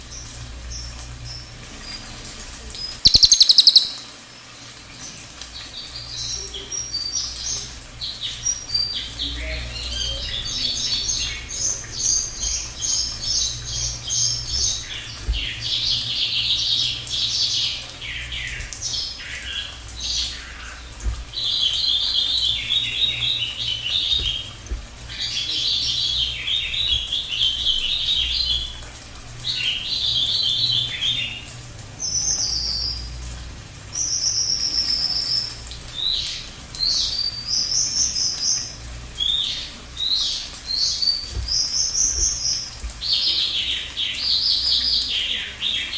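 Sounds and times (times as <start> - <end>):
songbird trilling: 3.0 - 4.0.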